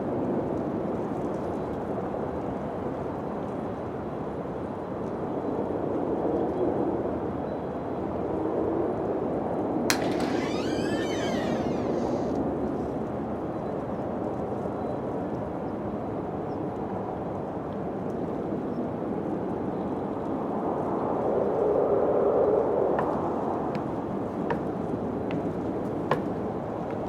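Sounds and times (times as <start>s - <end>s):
sharp crack: 9.9s - 12.4s.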